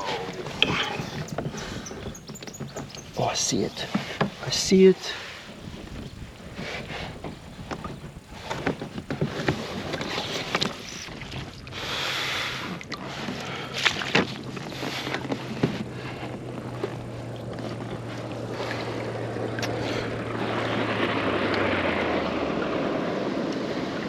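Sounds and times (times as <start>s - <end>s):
low motor hum: 0.0s - 3.9s, 14.4s - 24.0s
wind on microphone: 0.0s - 24.0s.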